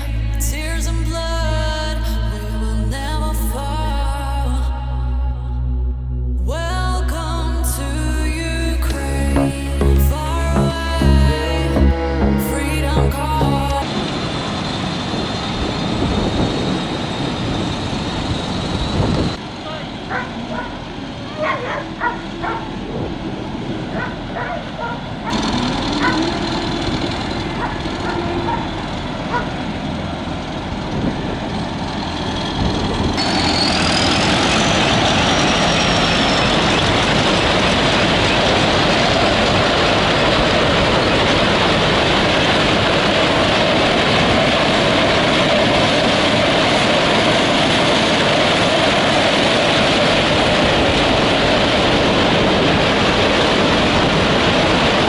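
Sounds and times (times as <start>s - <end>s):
combine harvester running: 25.3s - 55.0s.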